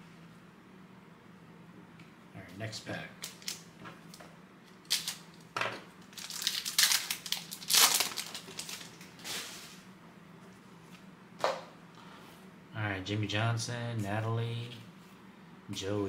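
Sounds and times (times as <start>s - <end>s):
foil wrapper tearing and crinkling: 3.2s - 3.6s, 4.8s - 5.3s, 6.1s - 9.4s.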